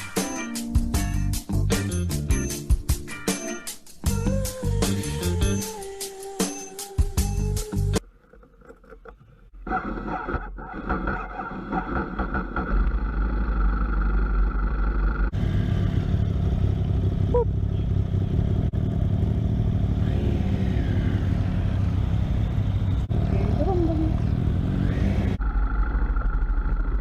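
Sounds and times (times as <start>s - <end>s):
music: 0.0s - 8.0s
motorcycle engine running: 12.1s - 27.0s.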